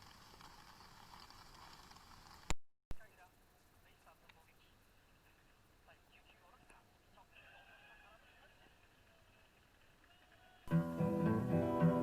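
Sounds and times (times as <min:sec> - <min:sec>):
steady rain: 0:00.0 - 0:02.5.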